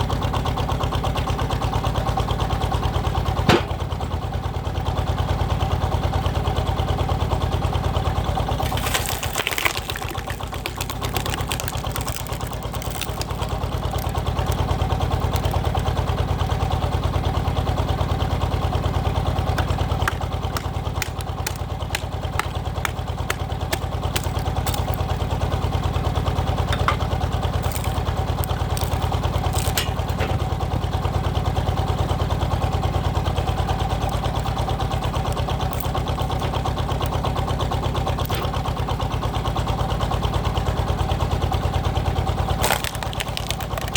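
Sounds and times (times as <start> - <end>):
diesel engine running: 0.0 - 43.9
sharp cracks and knocks: 3.5 - 3.8, 8.6 - 15.7, 19.5 - 25.4, 26.7 - 30.6, 38.2 - 38.7, 42.6 - 43.9.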